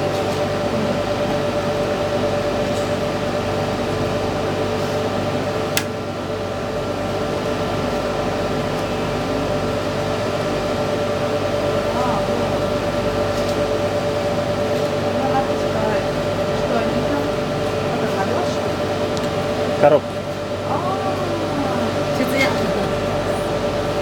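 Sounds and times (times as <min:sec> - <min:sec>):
sharp click: 0:05.8 - 0:06.0.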